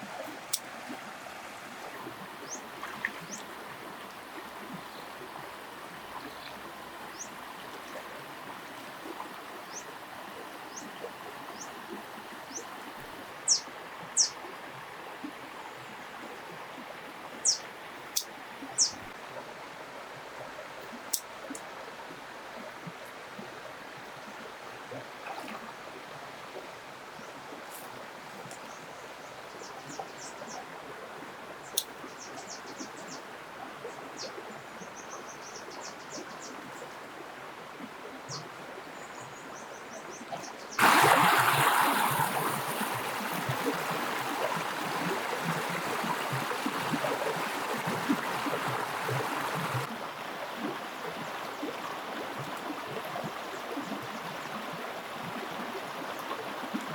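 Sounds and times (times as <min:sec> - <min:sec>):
high bird-like chirps: 0:18.8 - 0:19.0
water gushing and splashing: 0:40.8 - 0:50.8.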